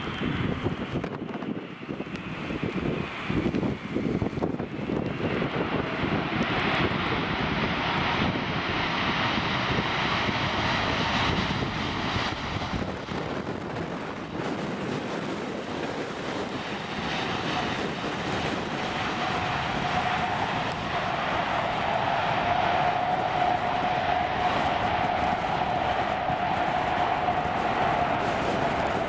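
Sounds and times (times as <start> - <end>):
jet engines running: 0.0 - 29.0.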